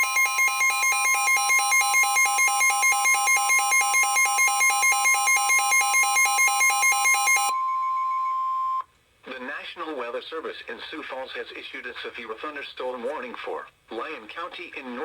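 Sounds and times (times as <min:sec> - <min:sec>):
steady high alarm tone: 0:00.0 - 0:08.8.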